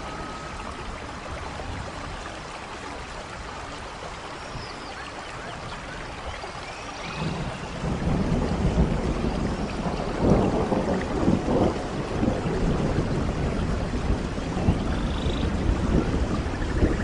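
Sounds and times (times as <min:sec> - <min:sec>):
steady rain: 0:00.0 - 0:17.0
low rumble of thunder: 0:07.0 - 0:17.0.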